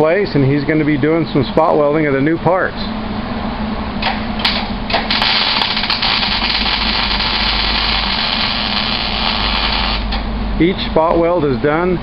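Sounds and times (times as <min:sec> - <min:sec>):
loud hiss of spot welding: 0:05.0 - 0:10.2.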